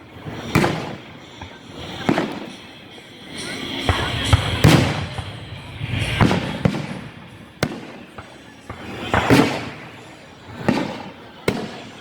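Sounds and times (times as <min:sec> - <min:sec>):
fireworks bursting with bangs: 0:00.0 - 0:12.0
fireworks crackling: 0:00.0 - 0:12.0
rumbling echo: 0:01.8 - 0:10.0.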